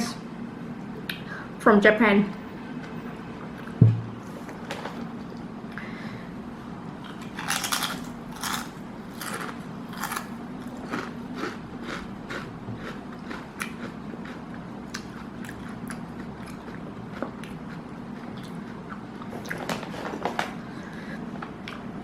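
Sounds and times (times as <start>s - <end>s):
person crunching potato chips: 7.0s - 16.8s.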